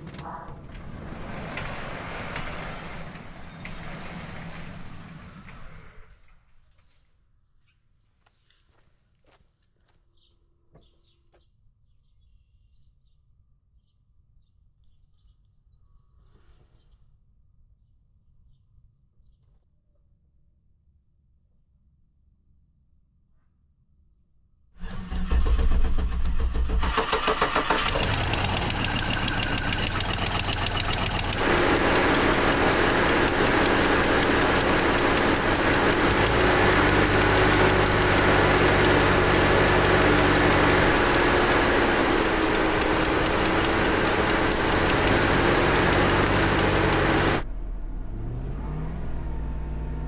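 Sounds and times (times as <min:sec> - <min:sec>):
engine cranking and starting: 0:24.8 - 0:47.4
engine idling with misfire: 0:24.8 - 0:47.5.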